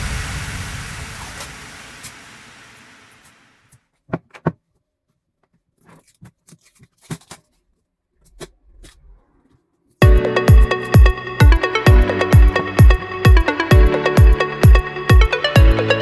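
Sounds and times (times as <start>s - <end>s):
electronic music with steady beat: 10.0s - 16.0s.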